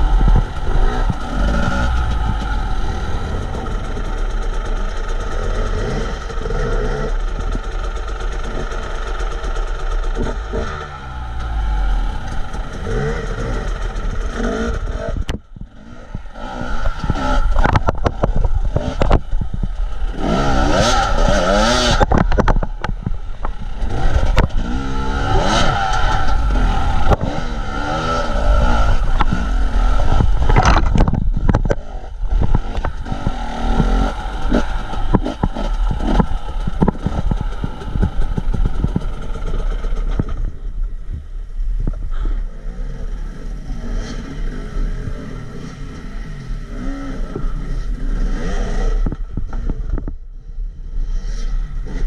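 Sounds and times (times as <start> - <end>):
vehicle engine revving: 0.0 - 40.9.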